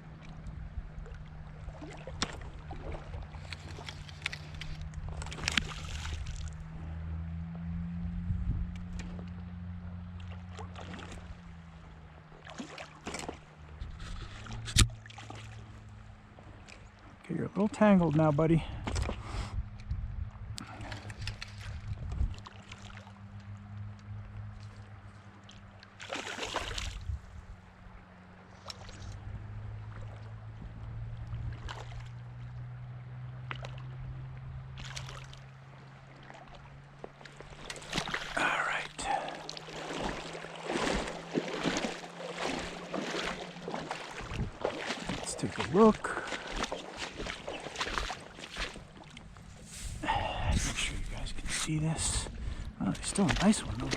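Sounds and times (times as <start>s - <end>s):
low steady hum: 0.0s - 53.9s
running river water: 0.0s - 53.9s
short sharp clicks or splashes: 1.1s - 6.6s, 12.4s - 15.6s, 20.6s - 24.8s, 25.4s - 27.1s, 28.6s - 29.2s, 31.2s - 32.2s, 34.8s - 35.5s, 36.2s - 49.3s, 53.0s - 53.9s.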